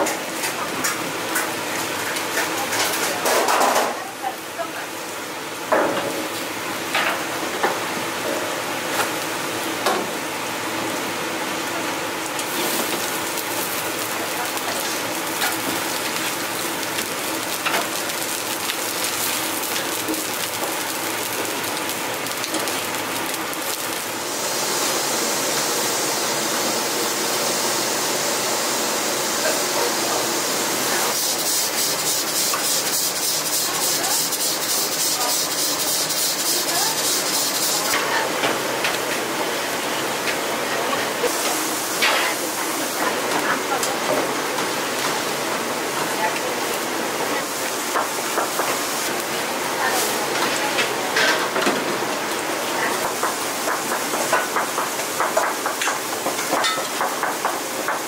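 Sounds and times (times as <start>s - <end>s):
pancakes sizzling in oil: 12.3s - 28.8s, 30.7s - 38.3s.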